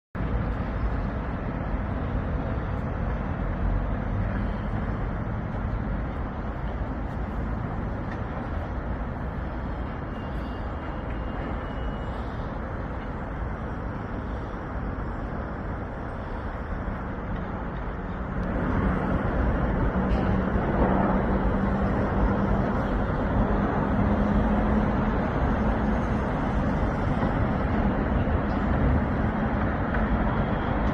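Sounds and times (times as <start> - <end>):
constant low hum: 0.2 - 30.9
road traffic rumble: 0.2 - 30.9.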